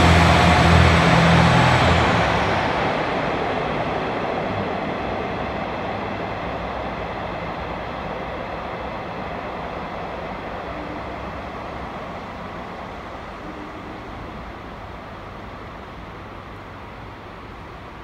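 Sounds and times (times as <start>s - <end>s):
train running: 0.0s - 18.0s.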